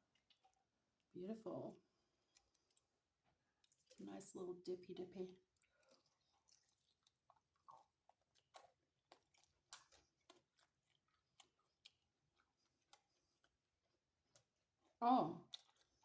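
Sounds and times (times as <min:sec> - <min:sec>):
faint chewing: 0:00.0 - 0:01.1, 0:01.7 - 0:16.0.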